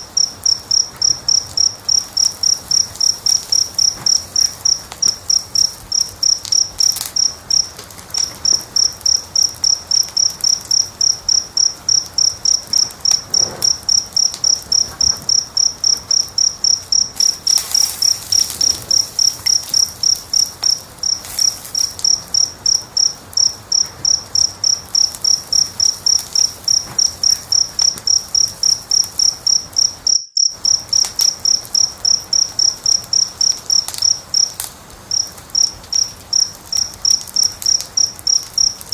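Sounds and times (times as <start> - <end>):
cricket chirping: 0.0 - 38.9
wood fire crackling: 0.0 - 38.9.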